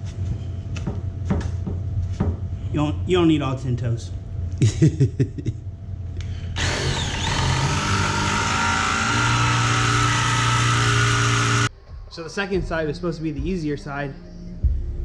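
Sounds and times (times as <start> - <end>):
electric drill motor: 6.6 - 11.7.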